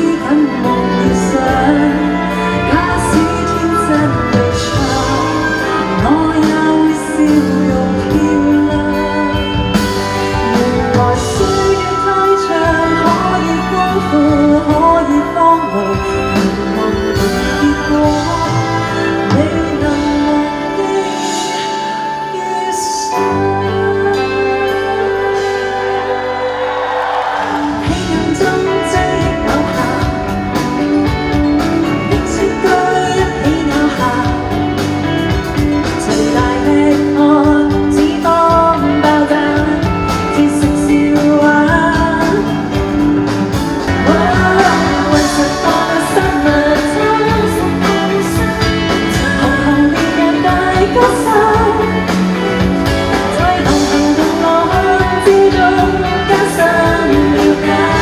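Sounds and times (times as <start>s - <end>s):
live pop-rock band: 0.0s - 58.0s
person singing: 0.0s - 58.0s
drums beating: 39.6s - 58.0s.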